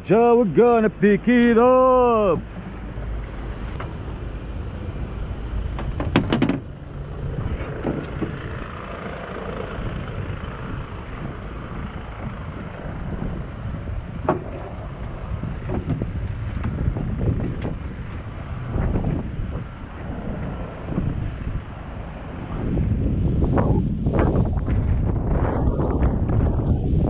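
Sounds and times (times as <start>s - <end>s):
wind buffeting microphone: 0.9s - 27.0s
knocks: 5.8s - 6.7s.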